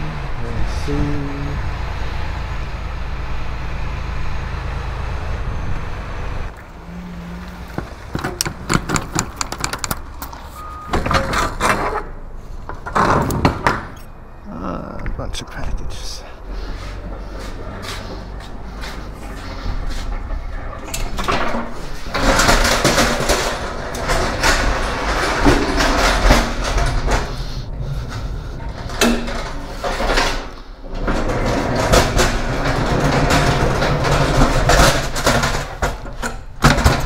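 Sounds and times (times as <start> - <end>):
boxes knocking and sliding: 7.6 - 14.0, 16.7 - 37.0.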